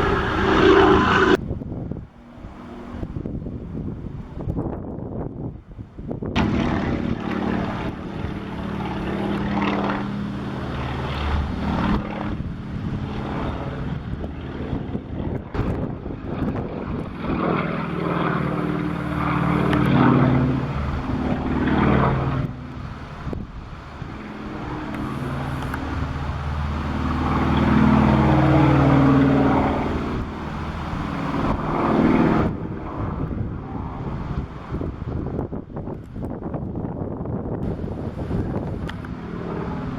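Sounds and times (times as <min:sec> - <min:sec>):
propeller plane engine: 0:00.0 - 0:39.9.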